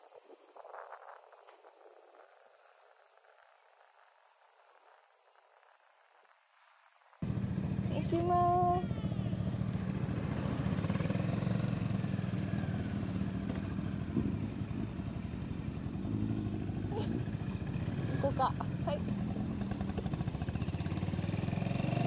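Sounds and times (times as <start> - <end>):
faint high hiss: 0.0 - 7.2
motorcycle engine idling: 7.2 - 21.5.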